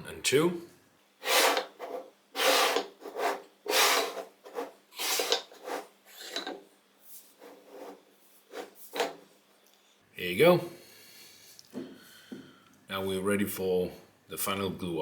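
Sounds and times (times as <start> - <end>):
wood pieces scraping together: 1.2 - 6.6, 7.3 - 9.2.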